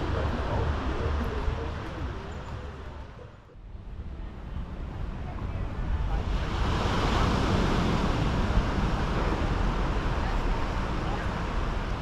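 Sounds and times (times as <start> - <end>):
wind rumbling on microphone: 0.0 - 12.0
sea surf rushing: 5.8 - 12.0.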